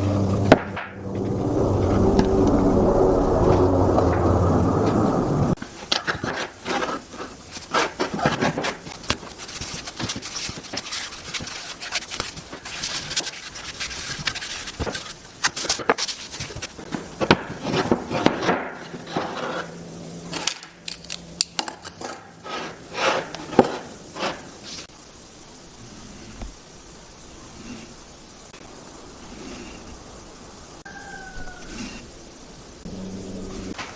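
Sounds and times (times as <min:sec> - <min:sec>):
wood knocking and scraping: 0:05.8 - 0:19.8, 0:21.6 - 0:24.5.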